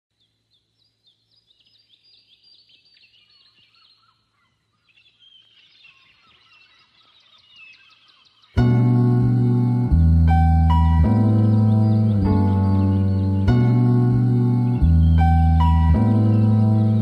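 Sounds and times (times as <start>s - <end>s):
small birds chirping: 0.1s - 17.0s
loud bass-heavy music: 8.6s - 17.0s.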